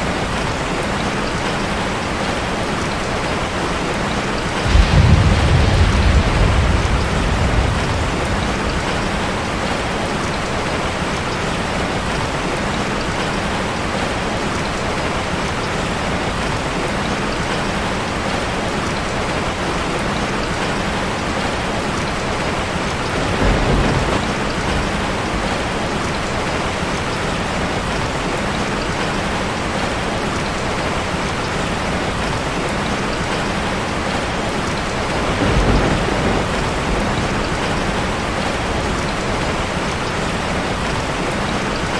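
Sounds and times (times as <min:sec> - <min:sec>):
heavy rain on a metal roof: 0:00.0 - 0:41.9
low rumbles: 0:04.6 - 0:10.3.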